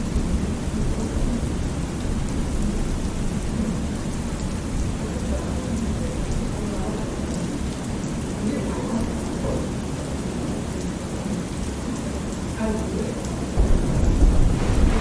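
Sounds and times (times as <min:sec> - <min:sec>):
steady rain: 0:00.0 - 0:15.0
low rumble of thunder: 0:13.6 - 0:15.0.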